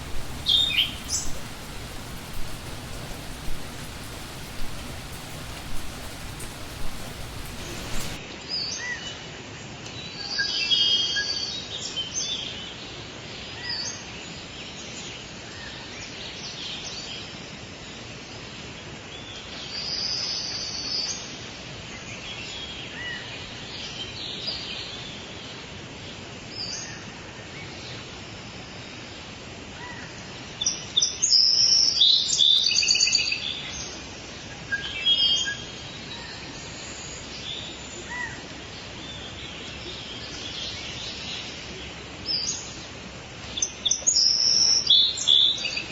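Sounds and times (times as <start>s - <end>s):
forest ambience: 0.0s - 8.2s
wild birds chirping: 0.0s - 8.2s.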